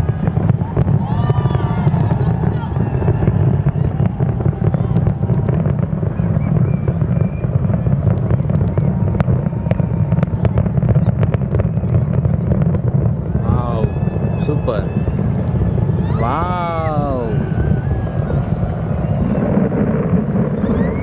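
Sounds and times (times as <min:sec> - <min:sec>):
distant fireworks rumble: 0:00.0 - 0:21.0
fireworks crackling: 0:00.0 - 0:21.0.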